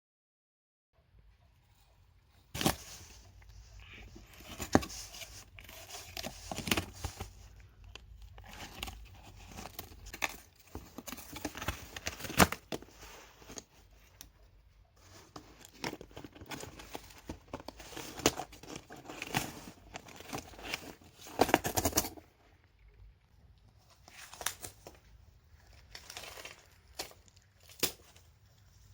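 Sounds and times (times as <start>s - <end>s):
toy crinkling and rustling: 1.8s - 22.9s, 23.7s - 28.9s.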